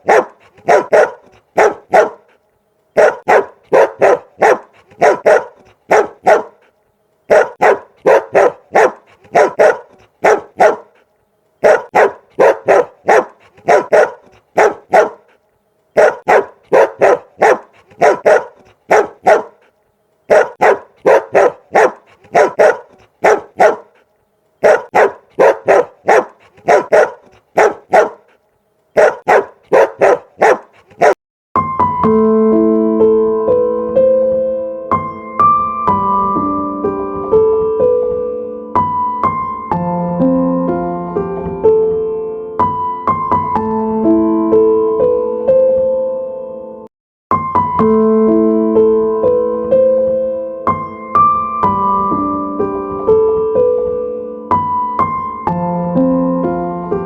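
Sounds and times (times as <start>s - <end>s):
dog barking: 0.0s - 2.4s, 3.0s - 6.7s, 7.3s - 11.0s, 11.6s - 15.4s, 16.0s - 19.7s, 20.3s - 24.0s, 24.6s - 31.2s.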